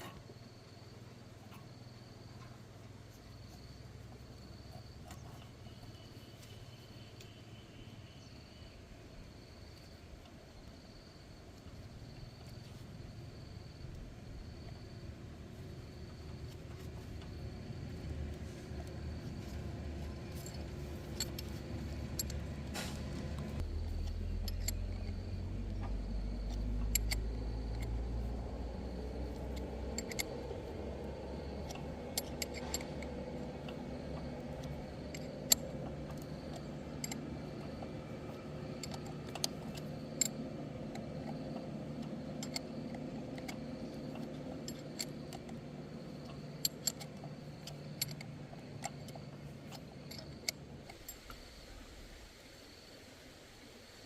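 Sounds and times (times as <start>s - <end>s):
steady low hum: 0.0s - 54.0s
light metallic clinks and taps: 18.8s - 22.6s, 23.4s - 51.4s.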